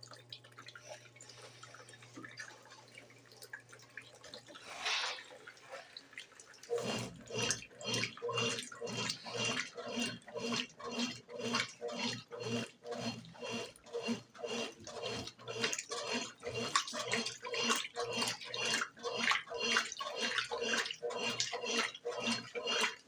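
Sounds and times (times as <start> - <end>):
washing machine motor hum: 0.0 - 23.0
water sloshing in washing machine: 0.0 - 23.0.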